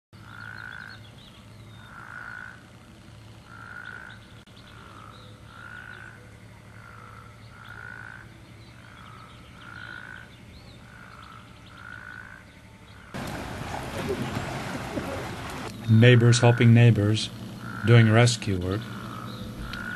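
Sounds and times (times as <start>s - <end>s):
steady low hum: 0.2s - 11.8s, 12.4s - 19.9s
frogs calling: 0.2s - 19.9s
loud noisy rush: 13.2s - 15.7s.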